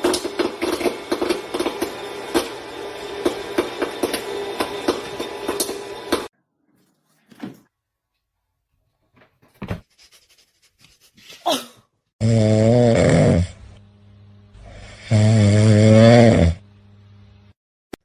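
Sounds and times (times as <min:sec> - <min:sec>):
low snore-like sound: 0:12.2 - 0:13.7, 0:14.5 - 0:16.7.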